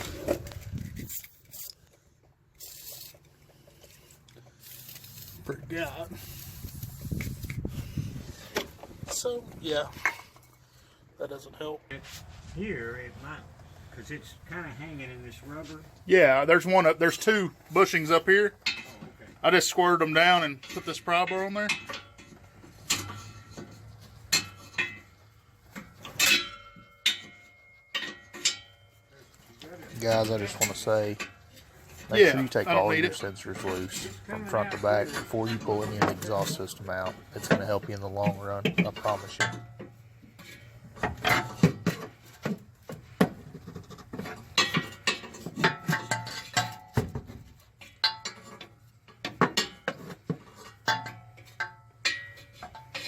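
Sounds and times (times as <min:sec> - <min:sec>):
metal tools clanking: 0:00.0 - 0:02.0, 0:02.6 - 0:11.0, 0:13.6 - 0:53.0
pry bar clanking on metal pipe: 0:20.5 - 0:23.7, 0:26.0 - 0:28.9, 0:32.8 - 0:42.1, 0:44.2 - 0:47.1, 0:47.8 - 0:53.0.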